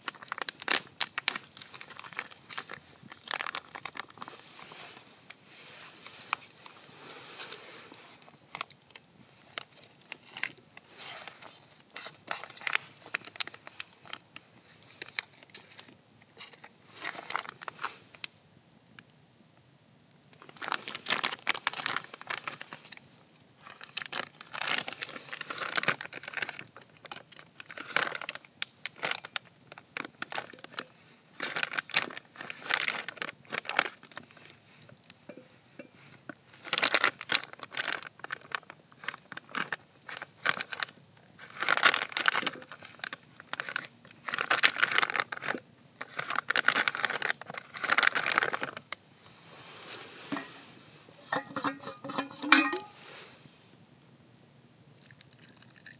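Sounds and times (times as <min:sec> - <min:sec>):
crinkling and crackling: 0:00.0 - 0:55.9.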